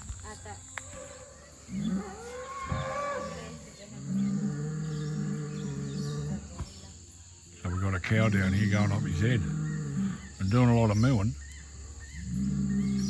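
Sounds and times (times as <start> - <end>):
bull mooing: 8.4 - 10.7.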